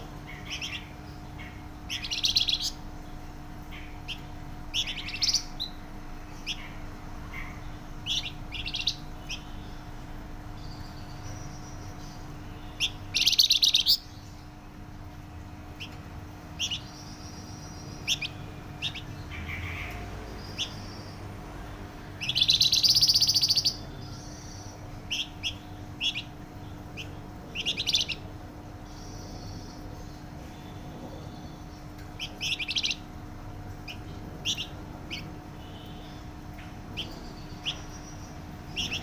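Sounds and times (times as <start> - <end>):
songbird trilling: 0.0 - 10.0, 10.6 - 14.4, 16.6 - 21.2, 22.2 - 33.2, 33.8 - 39.0
faint steady hum: 0.0 - 39.0.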